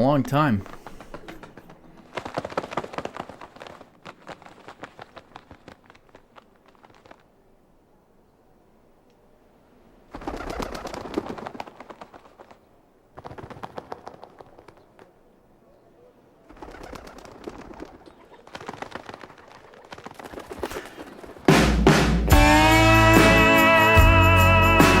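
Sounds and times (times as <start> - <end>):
pigeon wings flapping: 0.0 - 7.4, 10.1 - 15.3, 16.5 - 22.7
pigeons cooing: 0.6 - 3.7, 13.7 - 21.5.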